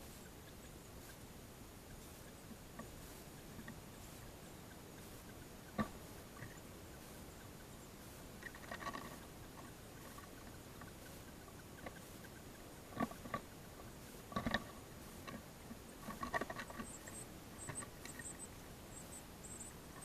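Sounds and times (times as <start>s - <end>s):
faint high bird chirps: 16.6s - 20.0s.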